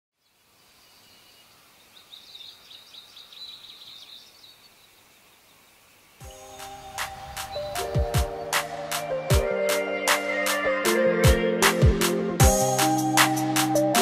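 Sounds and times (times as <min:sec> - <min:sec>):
bird chirping: 0:00.2 - 0:09.0
faint outdoor ambience: 0:00.2 - 0:12.4
music with a beat: 0:06.2 - 0:14.0.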